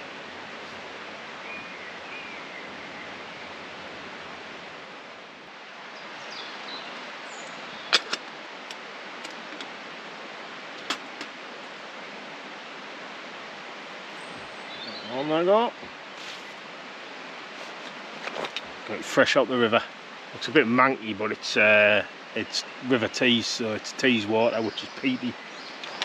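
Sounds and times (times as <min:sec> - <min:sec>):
river water rushing: 0:00.0 - 0:26.0
bird chirps: 0:06.0 - 0:08.1, 0:14.1 - 0:15.3.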